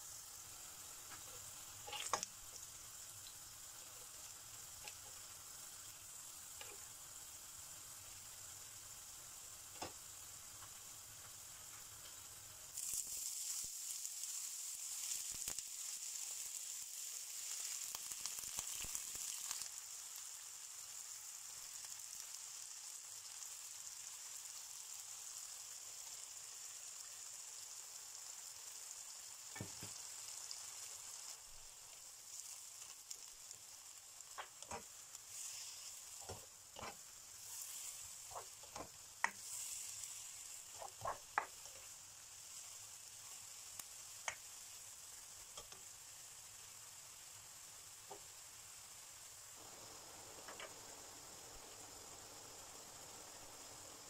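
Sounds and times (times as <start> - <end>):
oil sizzling in a frying pan: 0.0 - 54.0
spatula scraping a pan: 1.8 - 2.2, 34.6 - 41.7.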